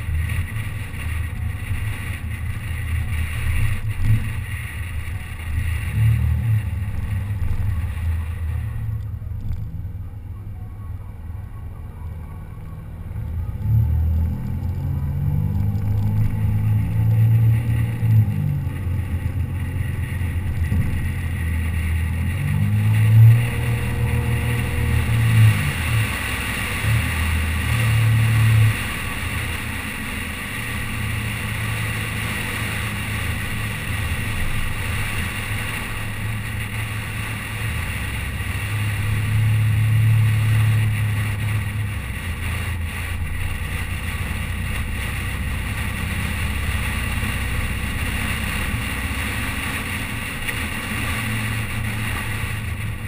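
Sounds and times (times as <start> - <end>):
car engine running: 0.0 - 53.0
road and wind noise: 0.0 - 53.0.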